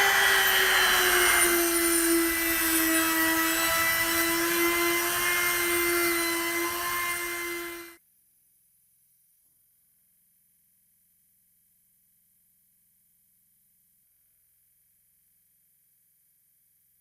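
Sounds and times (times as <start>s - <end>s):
electric power tool grinding metal: 0.0s - 8.0s.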